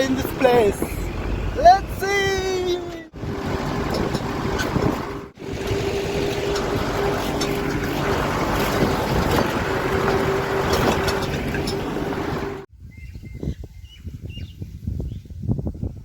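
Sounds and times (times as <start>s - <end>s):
wind rushing over microphone: 0.0s - 16.0s
engine running with whining tone: 2.7s - 12.7s.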